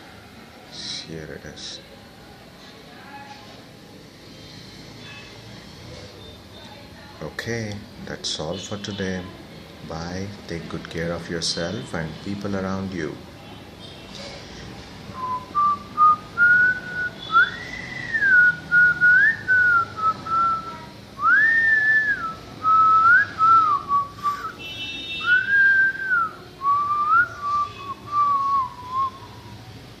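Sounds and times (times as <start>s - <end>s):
person whistling a slow tune: 15.2s - 24.6s, 25.2s - 29.3s.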